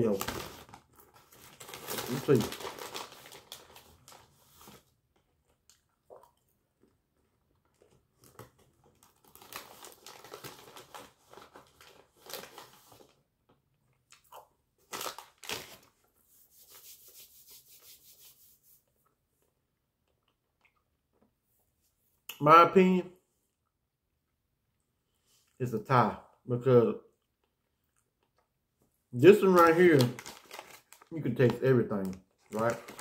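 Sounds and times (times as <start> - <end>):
snack bag crinkling: 0.0 - 5.9, 7.6 - 13.2, 14.1 - 15.9, 29.4 - 33.0.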